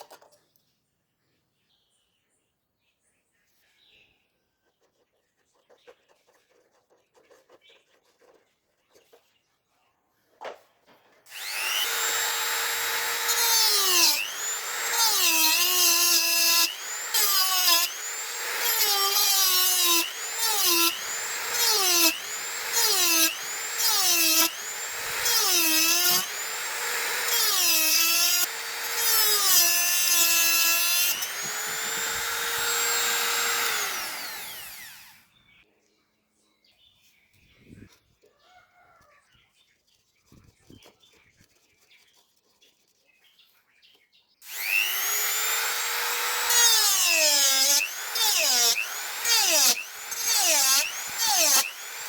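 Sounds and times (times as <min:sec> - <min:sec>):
electric power tool whining: 0:11.3 - 0:35.2, 0:44.4 - 0:52.0.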